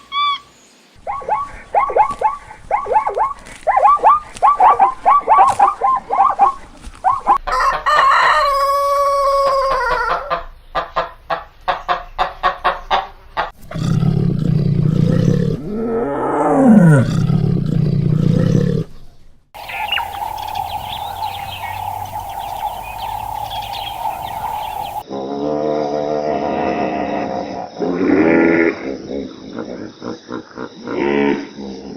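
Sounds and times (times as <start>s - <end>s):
rooster crowing: 7.4s - 10.4s, 19.6s - 25.0s
chicken clucking: 19.6s - 25.0s
steady hum: 19.6s - 25.0s.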